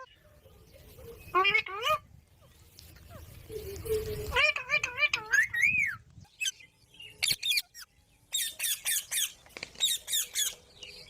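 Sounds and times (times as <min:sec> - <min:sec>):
parrot squawking: 0:04.3 - 0:06.5.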